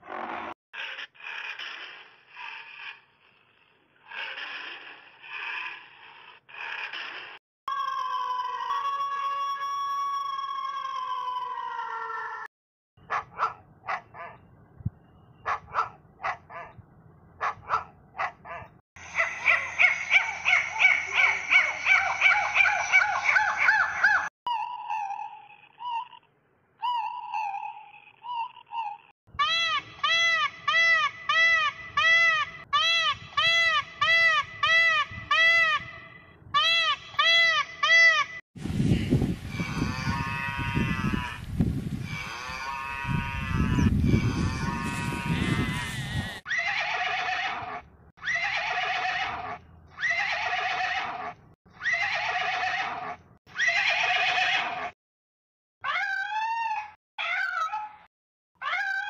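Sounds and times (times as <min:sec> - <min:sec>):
long rough animal call: 0:00.0 - 0:09.6, 0:38.9 - 0:51.3
drawn-out animal calls: 0:19.0 - 0:35.9, 0:38.9 - 0:54.9
short repeated animal calls: 0:42.0 - 0:47.6.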